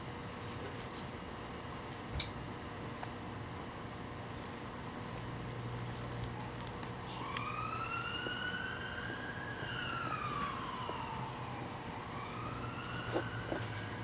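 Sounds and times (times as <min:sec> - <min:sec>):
siren wailing: 0:06.3 - 0:14.0.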